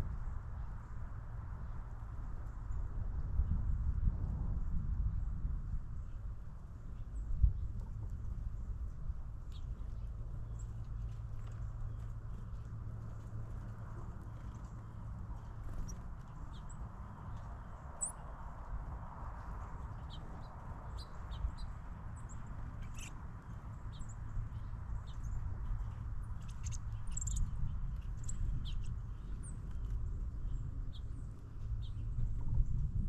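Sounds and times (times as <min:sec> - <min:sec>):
songbirds chirping: 0:06.8 - 0:32.8.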